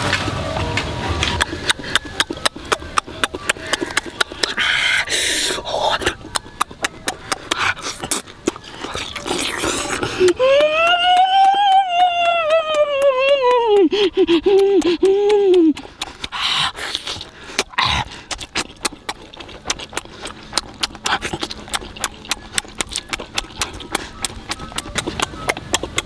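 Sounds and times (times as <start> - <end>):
wet chewing and lip-smacking: 1.2 - 26.0.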